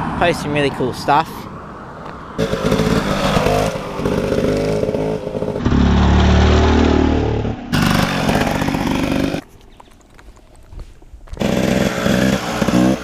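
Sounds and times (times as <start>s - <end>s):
dirt bike engine revving: 2.4s - 9.4s, 11.4s - 13.0s.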